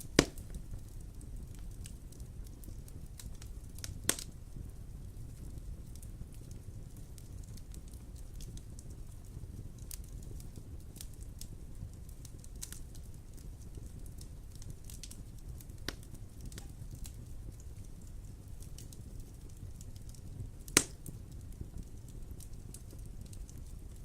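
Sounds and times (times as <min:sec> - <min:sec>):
loud pop from fire: 0:00.0 - 0:00.6, 0:03.2 - 0:04.4, 0:20.6 - 0:21.2
wood fire crackling: 0:00.0 - 0:24.0.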